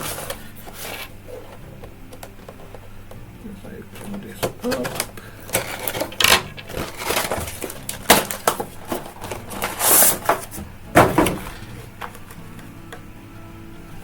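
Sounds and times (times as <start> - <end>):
cardboard and plastic packaging cracking: 3.9 - 12.4
packaging tearing: 4.4 - 10.5.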